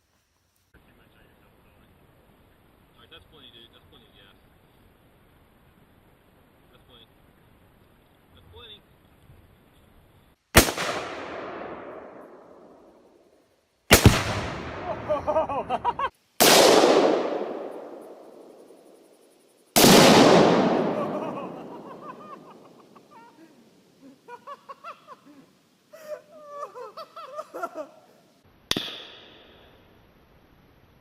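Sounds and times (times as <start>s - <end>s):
explosive blasts with rolling echo: 10.6s - 13.0s, 13.9s - 15.8s, 16.4s - 18.9s, 19.8s - 23.0s.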